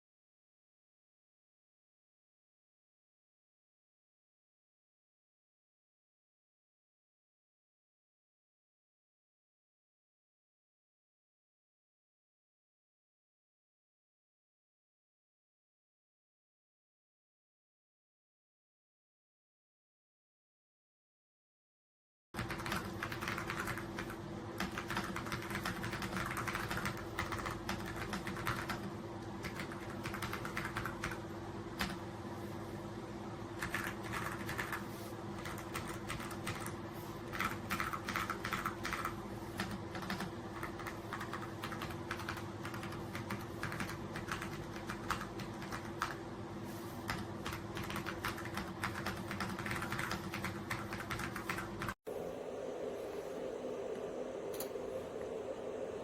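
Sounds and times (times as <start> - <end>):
fast typing on mechanical keyboard: 22.4 - 32.0, 33.6 - 46.2, 47.0 - 52.0.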